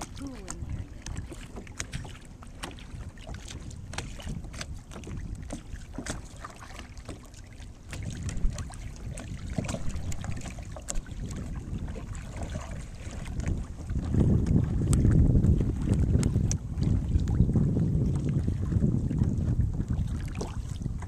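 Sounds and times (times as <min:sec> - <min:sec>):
paddle splashes and drips: 0:00.0 - 0:21.0
wind rumbling on microphone: 0:00.0 - 0:21.0.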